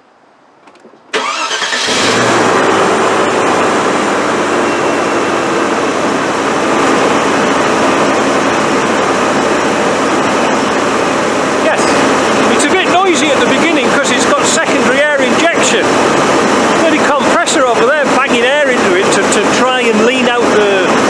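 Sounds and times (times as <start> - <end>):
engine cranking: 1.1 - 4.6
car engine running: 1.2 - 21.0.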